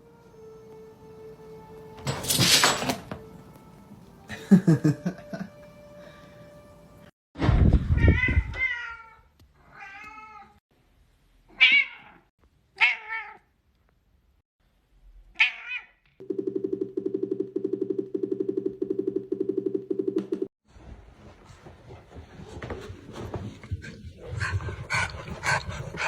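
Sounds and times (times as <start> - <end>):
cat meowing: 8.0 - 10.6, 12.8 - 13.5, 15.4 - 16.0.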